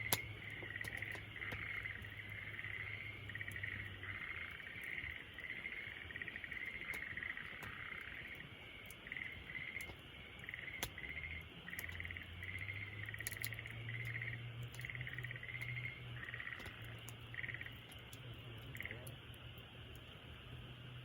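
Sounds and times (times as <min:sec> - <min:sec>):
campfire crackling and popping: 0:00.0 - 0:21.0
low steady hum: 0:00.0 - 0:21.0
trilled chirps of frog or insect: 0:09.0 - 0:17.8.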